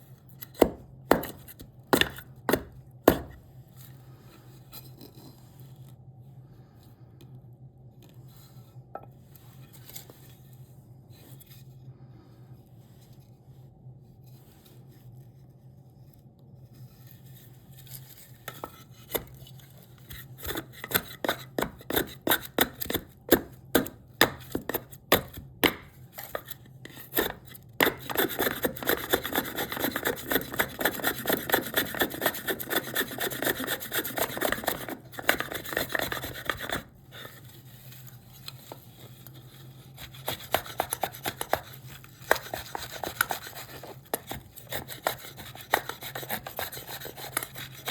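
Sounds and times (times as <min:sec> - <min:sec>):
hand tool scraping wood: 0:20.0 - 0:37.5, 0:38.7 - 0:47.9.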